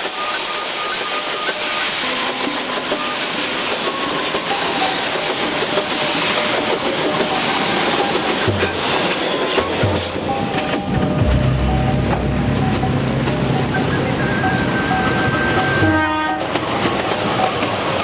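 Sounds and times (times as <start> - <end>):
train rolling on rails: 0.0 - 18.0
wheels squealing: 12.6 - 16.0.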